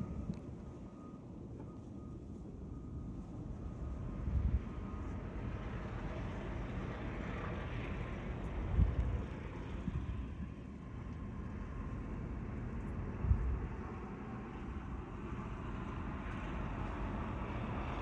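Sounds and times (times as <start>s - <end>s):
street traffic: 0.0s - 18.0s
wind: 0.0s - 18.0s.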